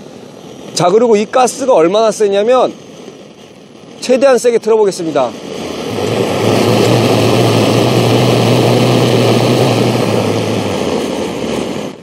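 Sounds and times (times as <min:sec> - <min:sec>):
torch flame rushing: 0:00.0 - 0:12.0
low hum: 0:05.3 - 0:12.0.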